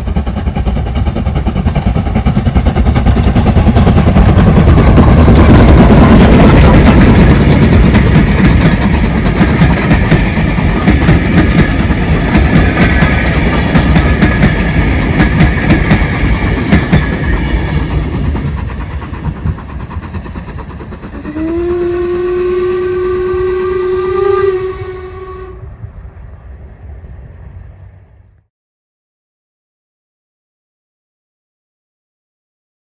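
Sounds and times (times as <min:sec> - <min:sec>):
train wheels clicking over rail joints: 0:00.0 - 0:23.9
train rumble: 0:00.0 - 0:28.4
train whistle: 0:21.1 - 0:25.7.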